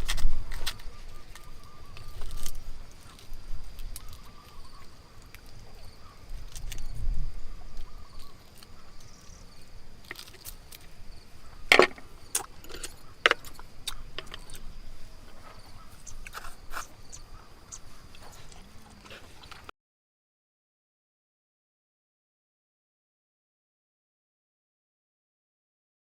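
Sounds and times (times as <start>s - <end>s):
high insect trill: 0.0s - 19.7s.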